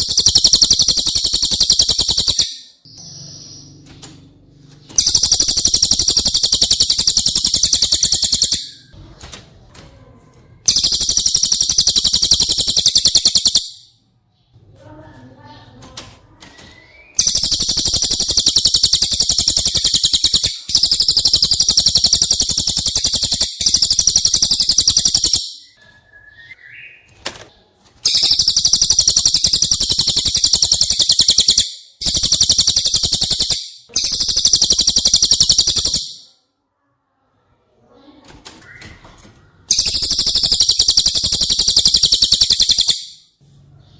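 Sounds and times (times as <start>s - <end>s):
bird song fast high trills: 0.0s - 3.8s, 5.0s - 8.9s, 10.7s - 13.8s, 17.0s - 27.0s, 28.1s - 36.3s, 39.7s - 43.3s.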